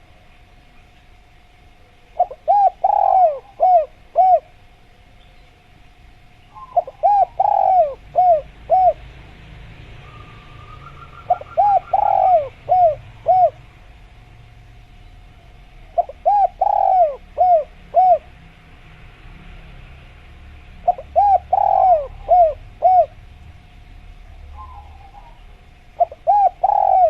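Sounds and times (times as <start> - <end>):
dove cooing: 2.2 - 4.6, 6.5 - 9.2, 10.0 - 13.9, 15.8 - 18.4, 20.8 - 23.2, 24.4 - 27.0.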